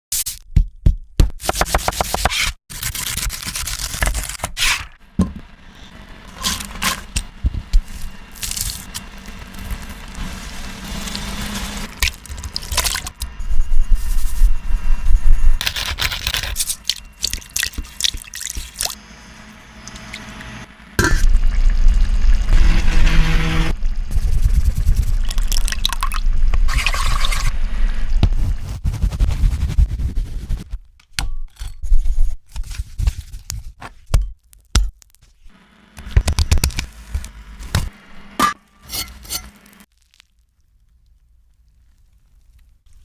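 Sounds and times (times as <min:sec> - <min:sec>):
liquid pouring and dripping: 0:25.2 - 0:26.2.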